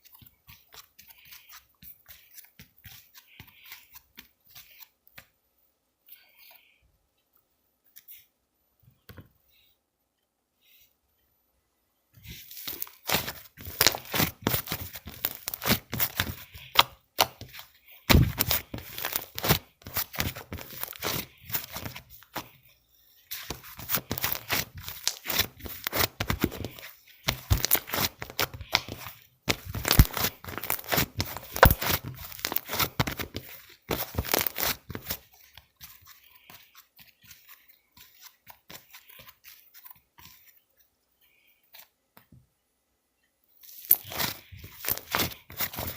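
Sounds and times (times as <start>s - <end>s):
slime crackling and popping: 27.4s - 35.1s.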